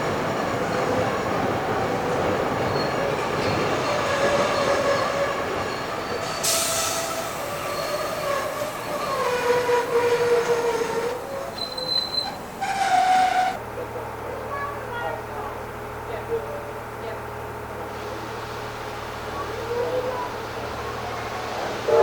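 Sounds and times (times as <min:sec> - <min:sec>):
train running noise: 0:00.0 - 0:22.0
train wheels squealing on rails: 0:02.5 - 0:13.6.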